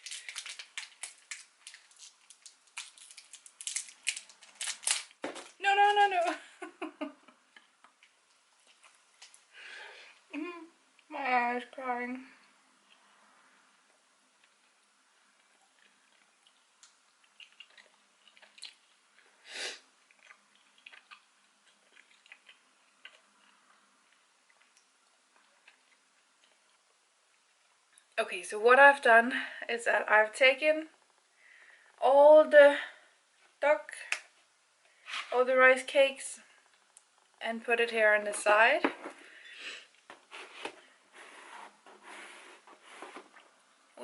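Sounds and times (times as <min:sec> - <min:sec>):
mouth chewing candy: 0:14.4 - 0:19.4, 0:20.0 - 0:27.6
wet mouth clicks: 0:15.6 - 0:18.9.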